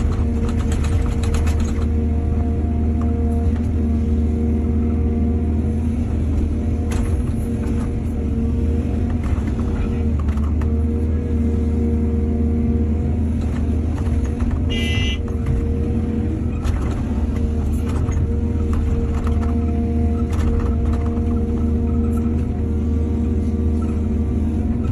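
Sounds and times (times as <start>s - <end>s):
knocks and clatter: 0.0s - 2.1s, 9.0s - 10.9s, 13.4s - 15.8s, 16.4s - 22.6s
diesel engine running: 0.0s - 24.9s.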